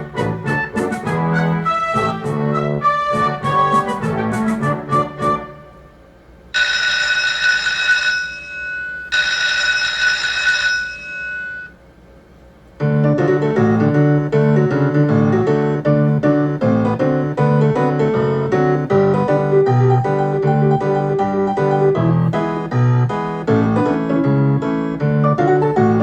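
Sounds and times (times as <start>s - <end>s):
piano-like game tune: 0.0s - 5.9s, 12.8s - 26.0s
bright ringing chimes: 6.6s - 11.8s.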